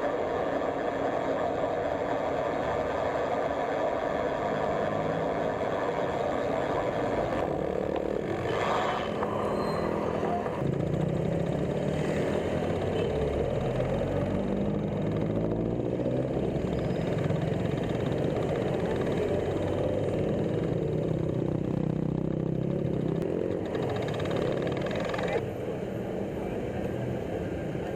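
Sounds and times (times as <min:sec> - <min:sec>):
vehicle engines running: 0:00.0 - 0:27.9.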